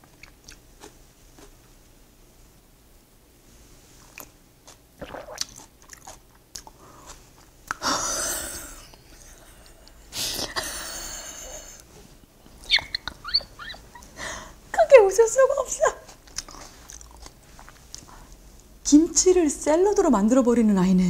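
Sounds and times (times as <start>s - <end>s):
crisp chewing: 4.0s - 7.8s, 16.1s - 18.4s
high squeaky giggles: 12.6s - 14.2s.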